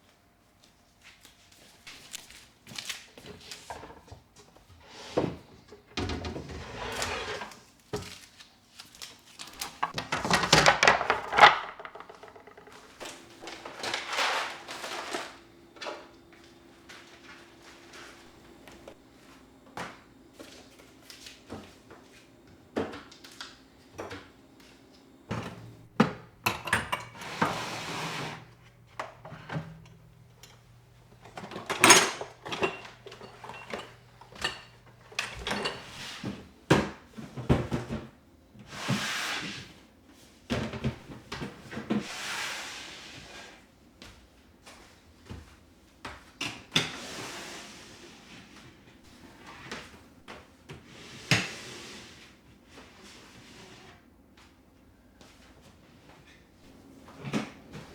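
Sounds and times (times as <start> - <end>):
kitchen items knocking and clattering: 3.2 - 8.1, 9.6 - 16.1, 25.3 - 38.2
brushing or sliding sounds: 6.5 - 7.6, 27.2 - 28.6.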